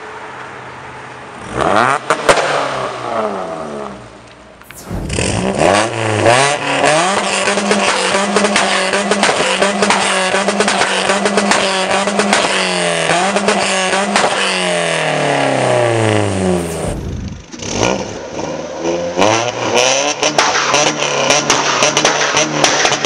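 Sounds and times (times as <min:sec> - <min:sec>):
car engine revving: 0:04.7 - 0:18.5
exhaust crackling pops: 0:16.6 - 0:17.7.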